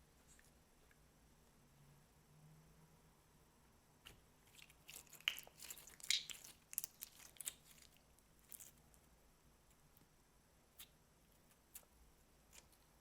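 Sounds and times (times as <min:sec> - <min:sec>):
slime crackling and popping: 0:04.5 - 0:08.8.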